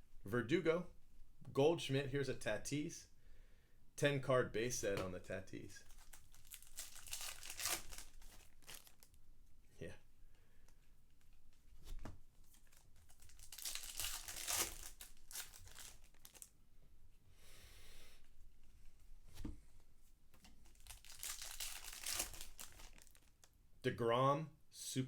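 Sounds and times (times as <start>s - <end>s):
wrappers tearing and crinkling: 5.9s - 9.2s, 12.5s - 16.5s, 20.6s - 23.5s.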